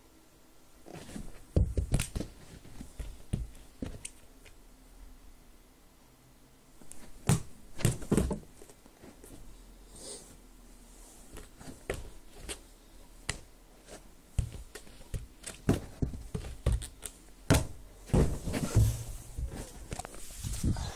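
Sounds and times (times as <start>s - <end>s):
irregular knocks and thuds: 1.0s - 4.0s, 14.3s - 16.9s, 17.5s - 19.7s.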